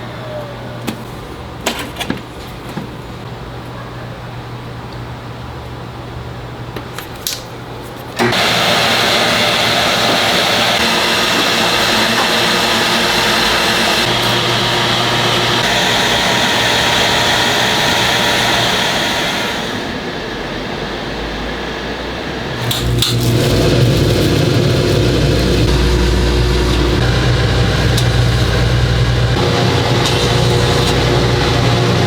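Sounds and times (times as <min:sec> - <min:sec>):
small power tool motor running: 0:08.2 - 0:20.0, 0:22.6 - 0:32.0
low hum: 0:22.6 - 0:32.0.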